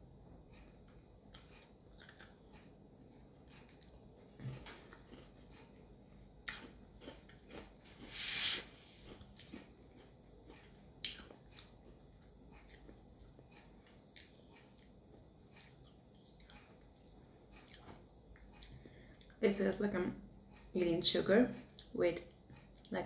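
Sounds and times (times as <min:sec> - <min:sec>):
chewing candy: 0:01.3 - 0:02.7, 0:03.5 - 0:05.8, 0:06.4 - 0:08.0, 0:09.1 - 0:19.4
short hissing burst: 0:08.0 - 0:08.8.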